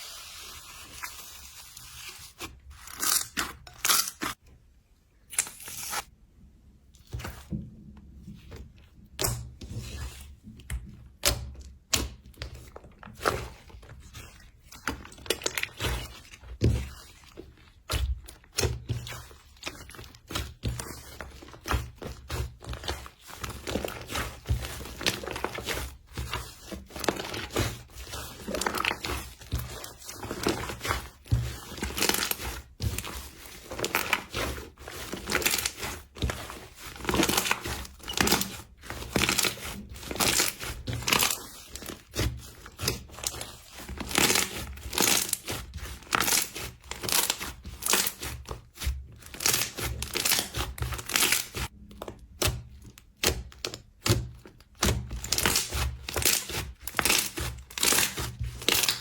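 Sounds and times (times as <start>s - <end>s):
slime crackling and crunching: 0.8s - 4.4s, 13.0s - 59.0s.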